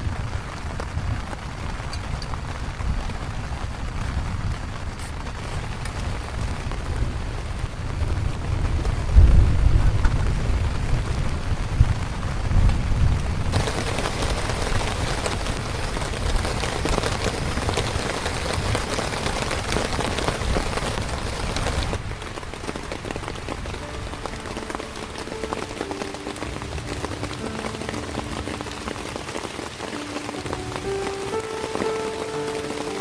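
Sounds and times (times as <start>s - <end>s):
heavy rain falling: 0.0s - 33.0s
soft sustained music tones: 23.4s - 33.0s.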